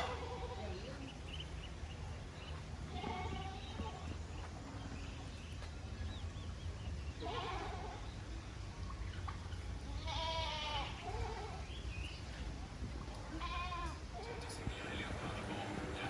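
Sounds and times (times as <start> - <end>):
animal bleating calls: 0.0 - 1.0, 2.8 - 4.2, 7.1 - 8.1, 9.9 - 11.7, 13.2 - 14.7.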